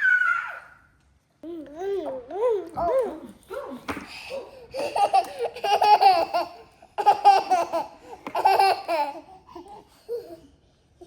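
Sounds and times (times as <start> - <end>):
baby laughing: 4.7 - 10.4.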